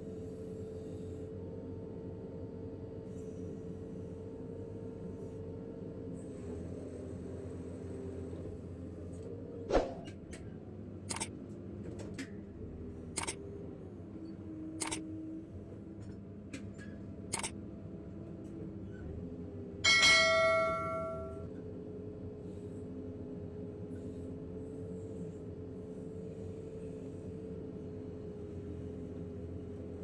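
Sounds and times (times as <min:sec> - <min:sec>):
ringing metallic clang: 0:19.8 - 0:21.5.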